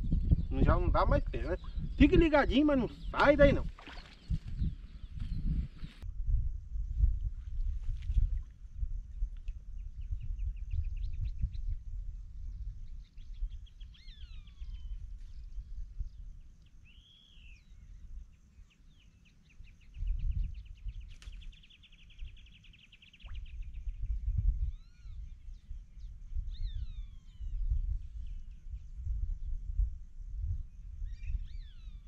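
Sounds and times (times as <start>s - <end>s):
wind rumble on microphone: 0.0s - 32.0s
birds trilling and whistling: 0.3s - 6.0s, 13.0s - 15.7s, 18.6s - 28.6s, 31.0s - 32.0s.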